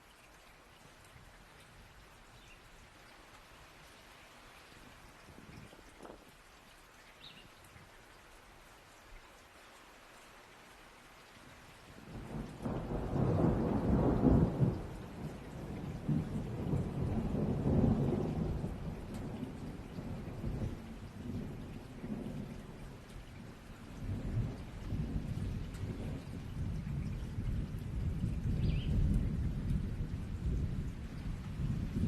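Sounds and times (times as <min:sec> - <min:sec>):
steady rain: 0:00.0 - 0:32.0
rolling thunder: 0:12.1 - 0:22.5, 0:24.0 - 0:32.0.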